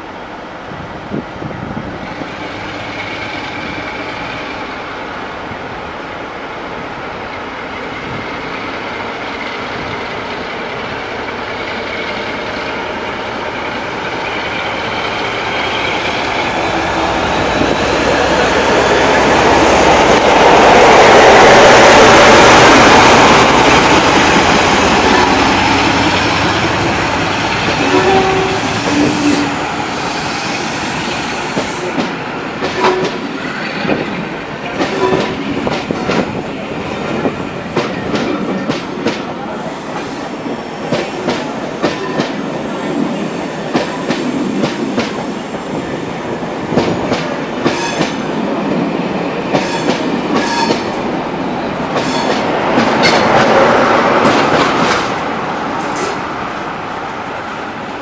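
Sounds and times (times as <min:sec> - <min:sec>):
diesel locomotive noise: 0:00.0 - 0:58.0
train wheels clicking over rail joints: 0:33.9 - 0:42.4, 0:51.9 - 0:56.3.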